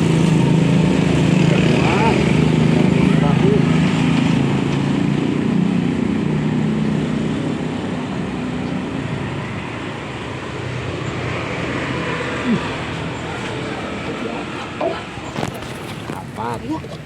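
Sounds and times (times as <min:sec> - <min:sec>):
vehicle engine running: 0:07.6 - 0:17.0
background hum: 0:08.7 - 0:17.0.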